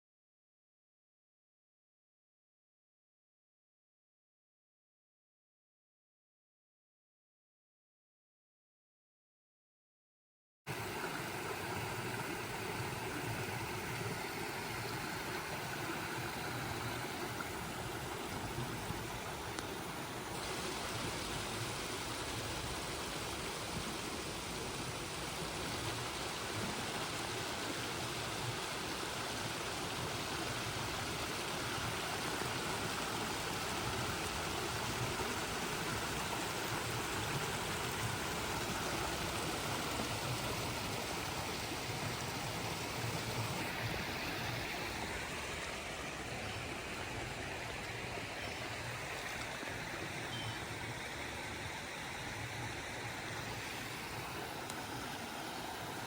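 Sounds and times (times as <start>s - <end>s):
stream water flowing: 10.7s - 56.0s.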